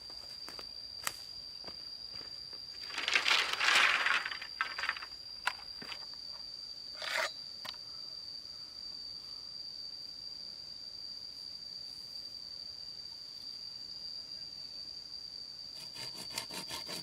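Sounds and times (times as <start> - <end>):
insect drone: 0.0 - 17.0
plant material rustling: 2.8 - 5.2.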